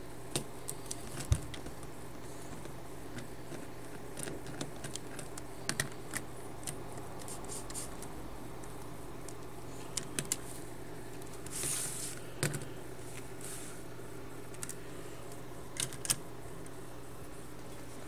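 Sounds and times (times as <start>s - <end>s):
steady low hum: 0.0s - 18.0s
soft rustles: 11.3s - 12.2s, 13.0s - 13.9s.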